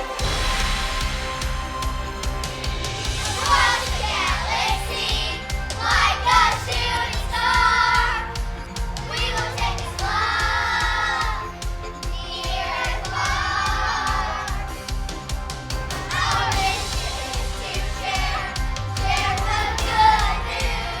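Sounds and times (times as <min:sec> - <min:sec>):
children singing: 0:00.0 - 0:21.0
instrumental music: 0:00.0 - 0:21.0.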